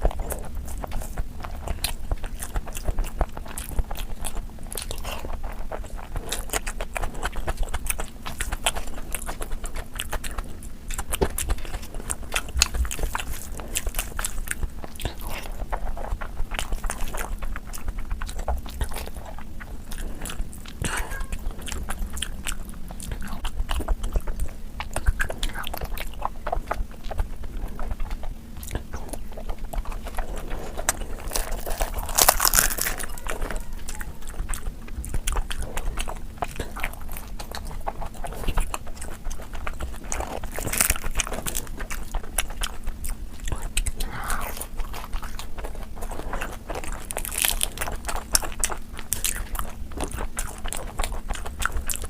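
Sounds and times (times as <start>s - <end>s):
person chewing food: 0.0s - 52.0s.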